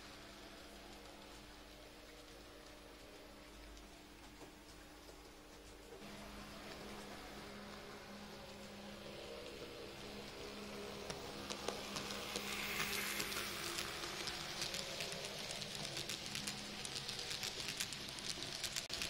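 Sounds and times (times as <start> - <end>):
model train running on track: 6.0 - 19.0.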